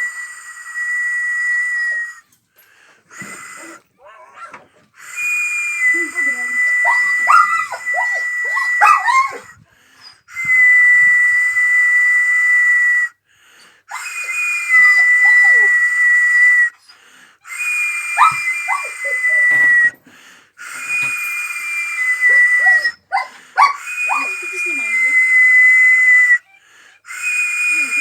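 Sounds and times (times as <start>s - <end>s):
person whistling high notes: 0.0s - 2.3s, 3.1s - 3.8s, 5.0s - 13.2s, 13.9s - 16.9s, 17.5s - 20.0s, 20.6s - 28.0s
dog whining and yelping: 3.2s - 4.8s, 6.1s - 10.3s, 14.8s - 15.8s, 18.1s - 19.9s, 22.3s - 24.8s.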